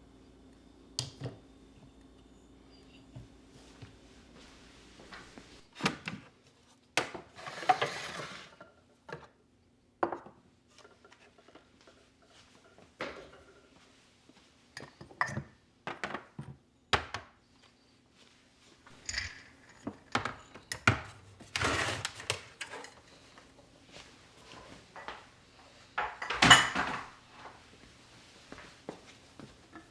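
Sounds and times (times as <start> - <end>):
objects knocking and clinking: 18.9 - 21.2.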